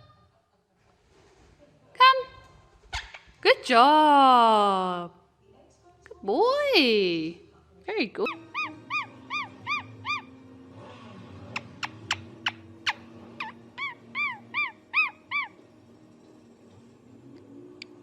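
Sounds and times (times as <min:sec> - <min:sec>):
bird whistling calls: 0:08.5 - 0:10.3.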